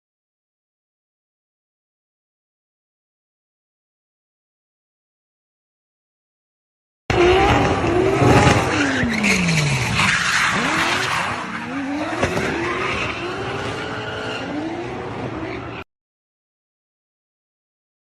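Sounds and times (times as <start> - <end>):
car engine revving hard: 7.1 - 15.5
tyres squealing and skidding: 7.1 - 15.9.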